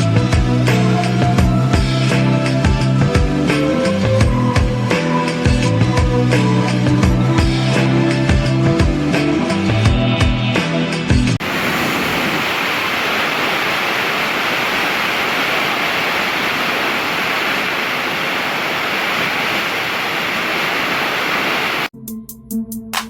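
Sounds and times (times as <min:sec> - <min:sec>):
music: 0:00.0 - 0:11.4, 0:21.9 - 0:23.0
rush of falling water: 0:11.4 - 0:21.9.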